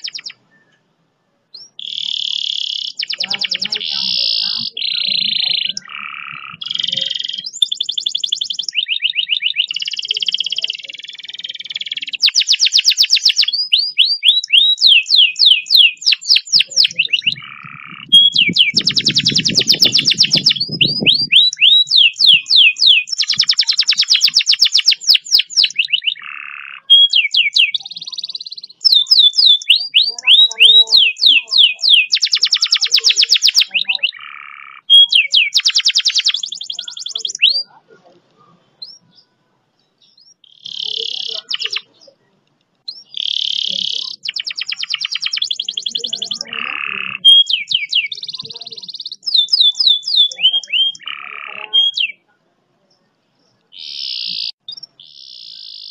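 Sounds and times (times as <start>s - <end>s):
canary singing trills: 0.0s - 55.9s.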